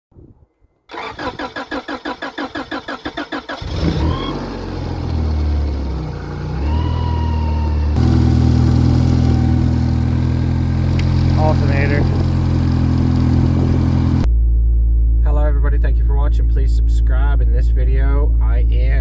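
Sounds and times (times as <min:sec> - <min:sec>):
car starter cranking: 0:00.9 - 0:07.2, 0:08.0 - 0:14.3
car engine revving and running: 0:01.0 - 0:15.0.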